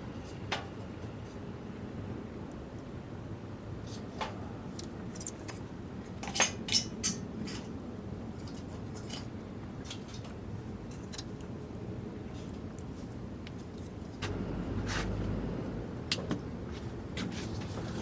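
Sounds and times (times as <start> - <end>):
steady low rumble: 14.2 - 18.0.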